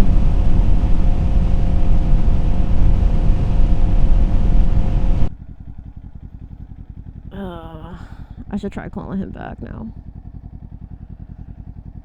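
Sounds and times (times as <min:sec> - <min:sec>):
wind noise: 0:00.0 - 0:05.3
motorcycle engine idling: 0:00.0 - 0:12.0
motorcycle engine running: 0:00.0 - 0:12.0.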